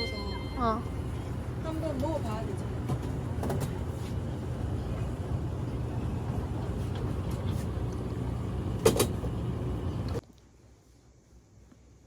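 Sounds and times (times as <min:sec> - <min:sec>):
low traffic rumble: 0:00.8 - 0:10.2.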